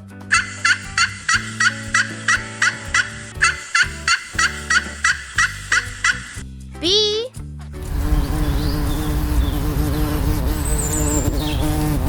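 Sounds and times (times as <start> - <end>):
background music: 0.0 - 12.0
turkey gobbling: 0.3 - 6.4.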